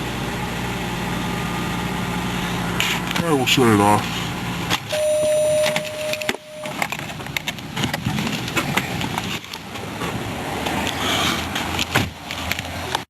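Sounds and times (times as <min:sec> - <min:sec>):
clicks: 0:04.8 - 0:07.6
car warning chime: 0:04.9 - 0:06.9.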